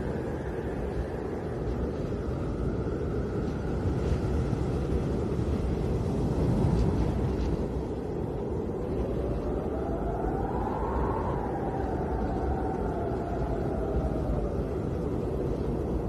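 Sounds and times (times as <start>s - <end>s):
snowstorm wind rushing: 0.0s - 16.0s
whistling wind howl: 0.0s - 16.0s.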